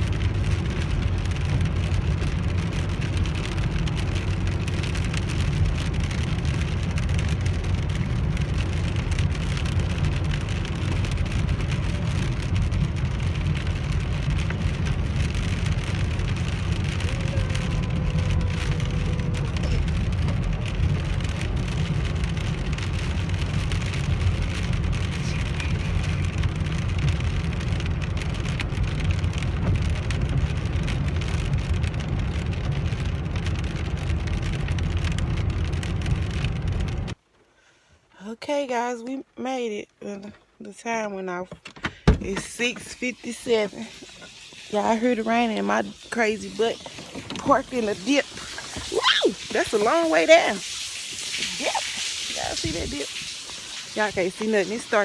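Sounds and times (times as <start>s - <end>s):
car road and engine rumble: 0.0s - 55.0s
rain hissing on car: 0.0s - 55.0s.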